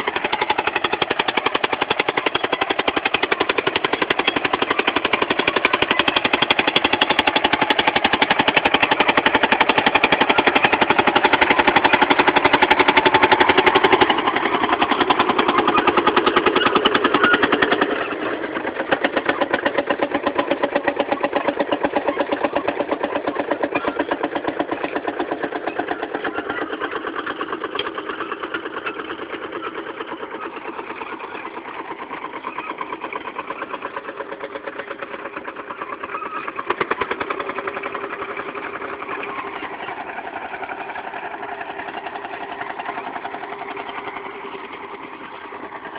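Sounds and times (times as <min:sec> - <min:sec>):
tractor diesel engine under load: 0:00.0 - 0:45.9.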